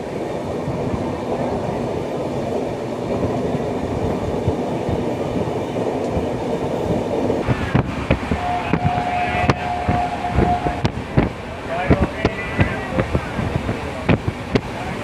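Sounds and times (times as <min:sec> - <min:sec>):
train rumble inside coach: 0:00.0 - 0:15.0
wheels clacking over track: 0:01.4 - 0:15.0
steady high tone: 0:07.5 - 0:12.9.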